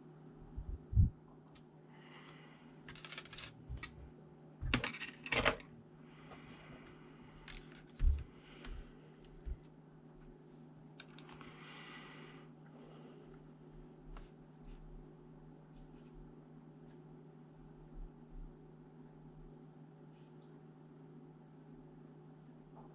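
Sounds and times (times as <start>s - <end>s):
steady low hum: 0.0s - 22.9s
small metal parts clinking: 2.9s - 4.0s.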